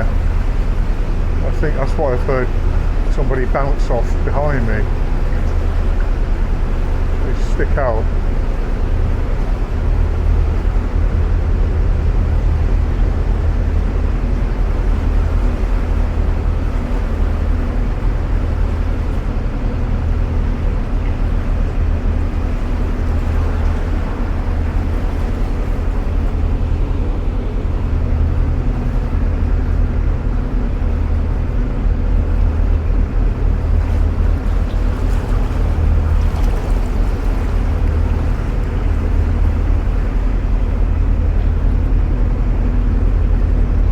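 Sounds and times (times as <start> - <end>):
boat diesel engine running: 0.0 - 43.9.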